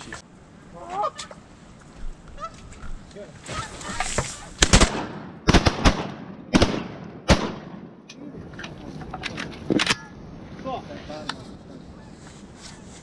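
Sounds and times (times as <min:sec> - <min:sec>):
shotgun shots: 0:04.6 - 0:08.0.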